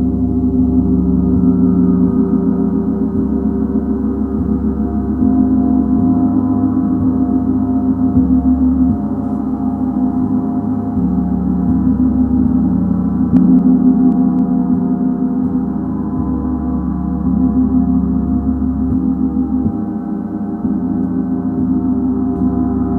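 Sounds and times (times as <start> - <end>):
gong ringing: 0.0 - 22.9.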